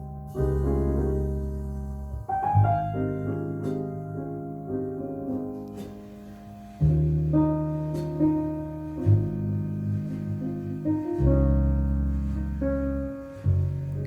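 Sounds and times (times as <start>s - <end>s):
piano music over loudspeakers: 0.0s - 14.0s
deep bass notes: 8.7s - 14.0s.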